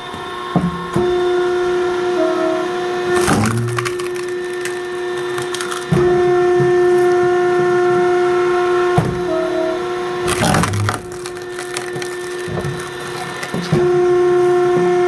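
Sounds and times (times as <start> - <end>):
machine mechanical hum: 0.0 - 15.0
log cracking and splintering: 3.1 - 7.2, 10.2 - 14.2.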